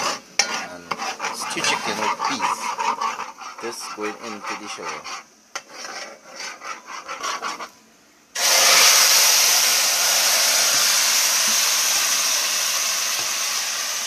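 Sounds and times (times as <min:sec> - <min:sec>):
scraping in a pot: 0:00.0 - 0:07.8
chicken sizzling in hot oil: 0:08.4 - 0:14.0.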